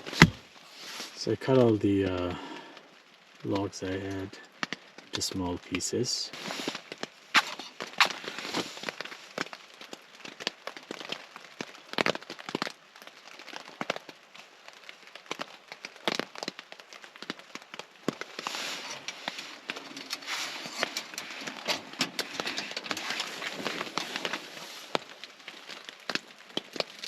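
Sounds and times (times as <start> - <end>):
wood fire crackling and popping: 0.0 - 27.0
steady hiss: 5.2 - 9.0.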